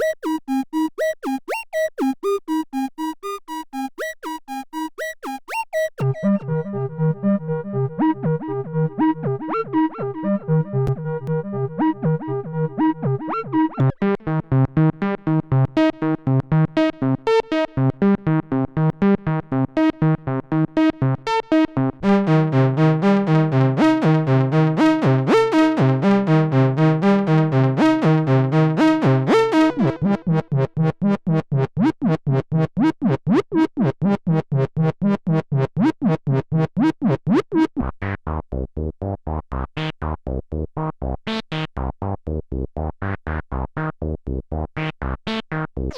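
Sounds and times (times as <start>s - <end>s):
synthesizer sequenced pattern: 0.0s - 6.7s, 22.1s - 32.2s.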